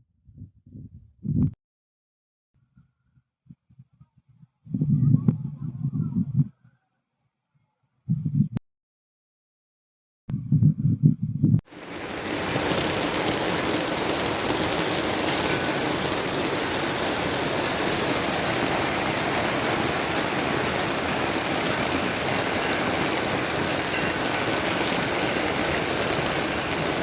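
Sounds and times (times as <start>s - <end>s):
rushing water: 11.7s - 27.0s.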